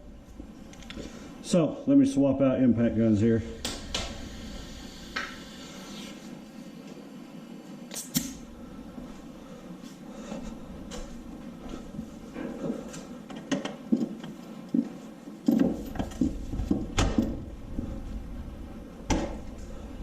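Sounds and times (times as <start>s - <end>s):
tools clattering and thudding: 12.3s - 17.8s.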